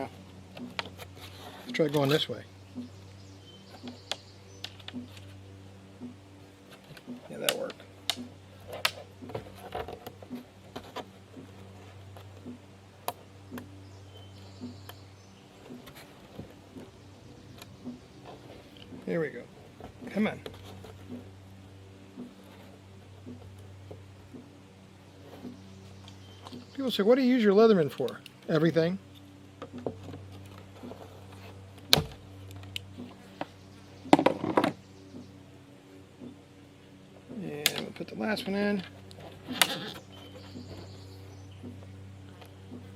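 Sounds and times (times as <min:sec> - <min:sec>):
steady low hum: 0:00.0 - 0:42.9
plastic pipe clicks and knocks: 0:34.1 - 0:34.8.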